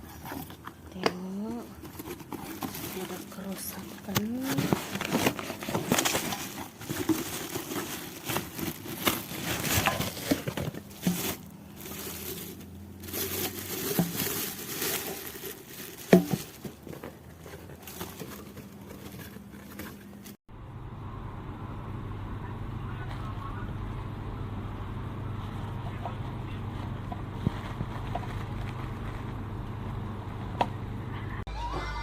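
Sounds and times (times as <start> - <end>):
packaging rustling and crinkling: 0.0 - 20.4, 25.4 - 29.9.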